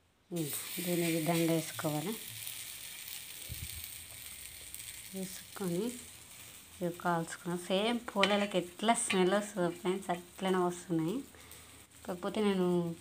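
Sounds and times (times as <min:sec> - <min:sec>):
flatbread sizzling on a griddle: 0:00.3 - 0:13.0.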